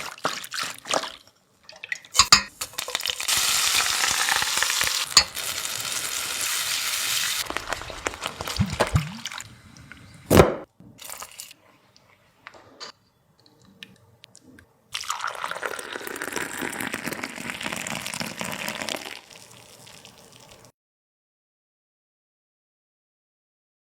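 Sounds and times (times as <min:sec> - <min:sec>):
food sizzling in hot oil: 0:02.2 - 0:10.3.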